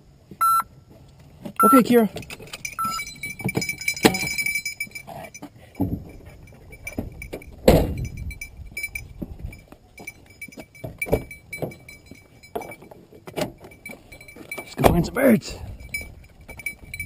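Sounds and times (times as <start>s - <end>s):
dog collar jingling: 1.9s - 17.0s
thump: 7.6s - 8.1s.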